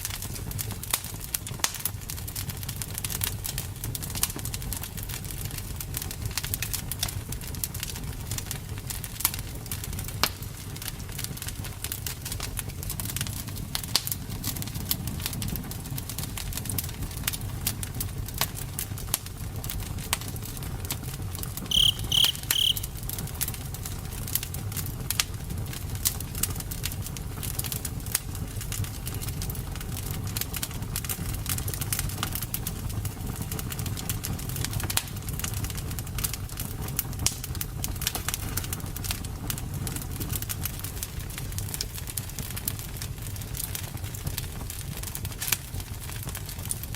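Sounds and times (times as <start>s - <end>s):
campfire crackling and popping: 0.0s - 46.9s
short high chirps: 21.7s - 22.9s.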